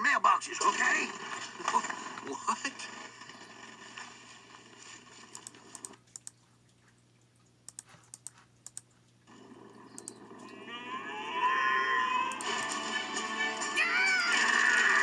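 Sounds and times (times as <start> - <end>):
sharp irregular clicks: 5.3 - 6.4, 7.6 - 10.5, 12.3 - 12.9, 13.6 - 14.9
music: 11.0 - 15.0.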